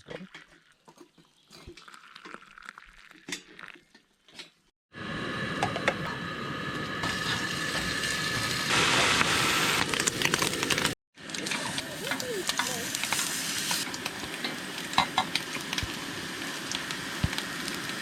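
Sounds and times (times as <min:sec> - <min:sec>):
food sizzling in a hot pan: 0:07.0 - 0:18.0.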